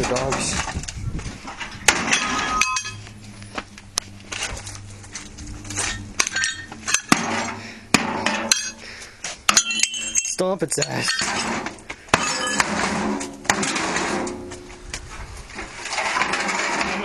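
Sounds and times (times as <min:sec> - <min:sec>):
metal and glass pieces clattering: 0:01.6 - 0:03.2, 0:04.7 - 0:14.4.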